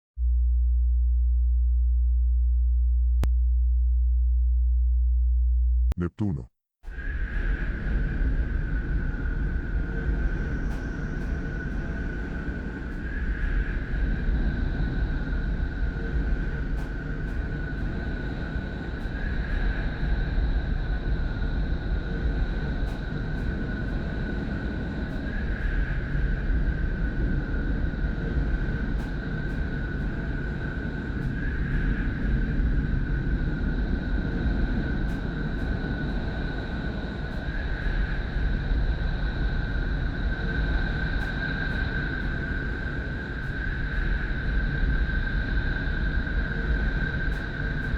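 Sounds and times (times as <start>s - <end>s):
deep rumbling drone: 0.2s - 5.9s.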